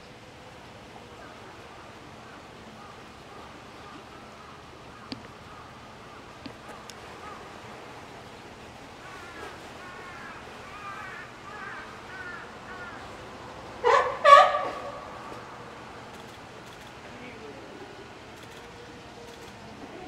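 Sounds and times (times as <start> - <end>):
outdoor ambience: 0.0 - 20.0
birds calling: 1.2 - 16.9.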